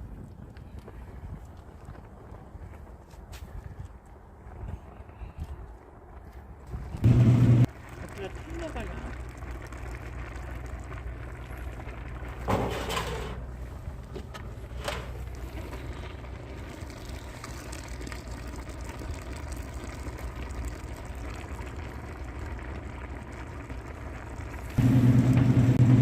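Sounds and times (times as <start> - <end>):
wood fire burning: 0.0 - 26.0
low hum: 4.1 - 26.0
boiling bubbling: 6.1 - 26.0.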